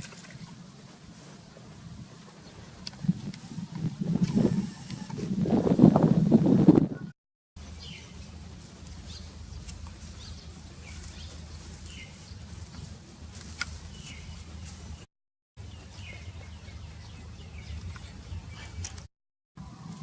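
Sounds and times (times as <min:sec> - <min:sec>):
small birds chirping: 0:07.6 - 0:19.1.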